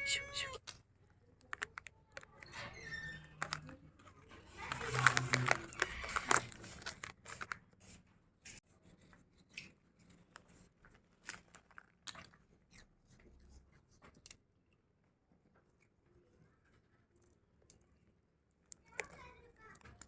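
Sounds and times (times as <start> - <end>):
kitten crunching food: 0.0 - 2.6, 3.3 - 7.7, 11.0 - 12.6.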